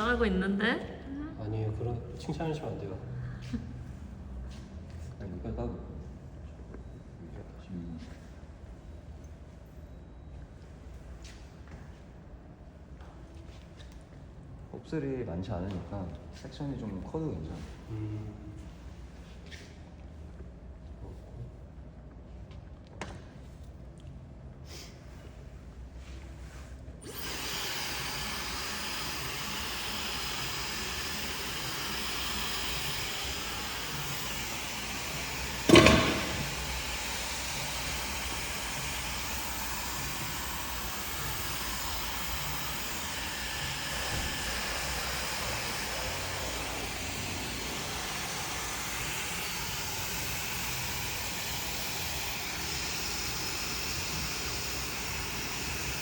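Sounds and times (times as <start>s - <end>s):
hair dryer blowing: 27.0s - 56.0s
sharp knock: 35.7s - 36.7s.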